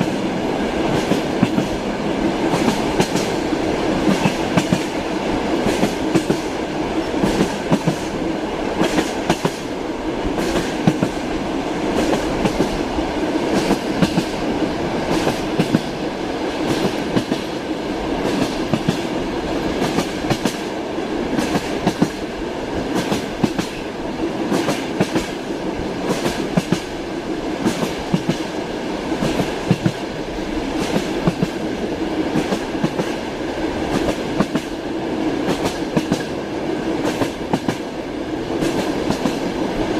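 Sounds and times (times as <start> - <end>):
train rumble: 0.0 - 39.9
wheels clickety-clack over rail joints: 0.0 - 39.9.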